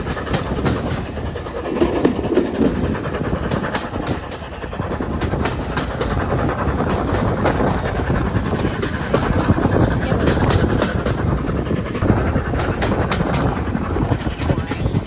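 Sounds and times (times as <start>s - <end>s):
steam train rumbling: 0.0s - 15.0s
wheels clattering over rails: 0.0s - 15.0s.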